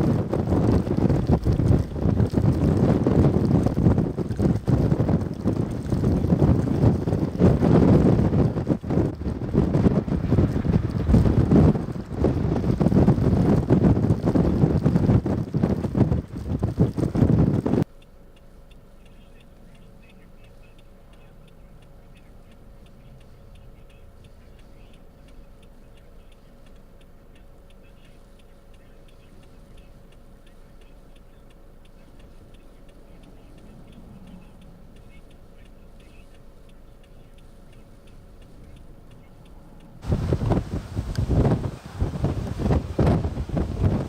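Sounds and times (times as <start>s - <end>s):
faint hum: 0.0s - 44.0s
steady ticking: 17.8s - 44.0s.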